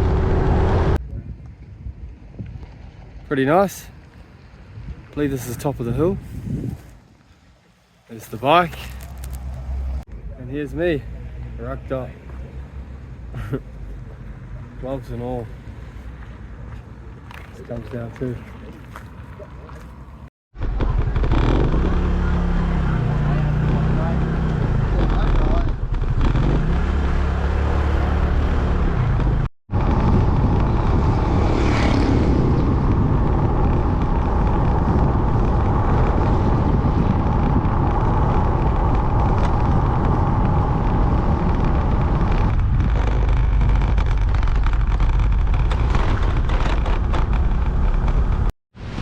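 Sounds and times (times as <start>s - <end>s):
wind rushing over microphone: 0.0s - 11.3s, 19.9s - 49.0s
scooter engine running: 20.6s - 27.4s.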